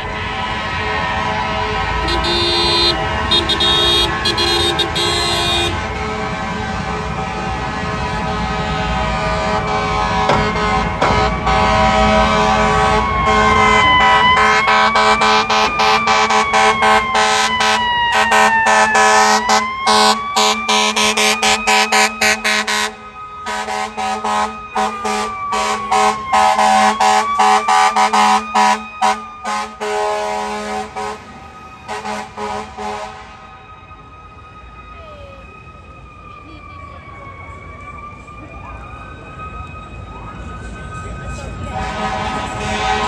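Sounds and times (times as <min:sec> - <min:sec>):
fire engine air horn bursts: 0:00.0 - 0:33.6, 0:41.7 - 0:43.0
siren wailing: 0:00.0 - 0:43.0.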